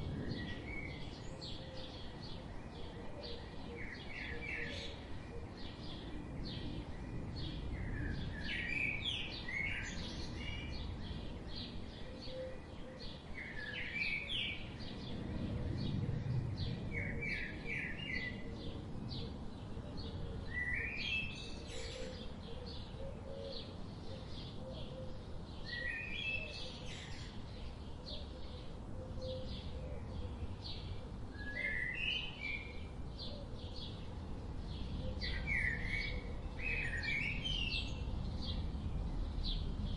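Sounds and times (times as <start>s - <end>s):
low outdoor rumble: 0.0s - 3.7s, 14.6s - 20.5s.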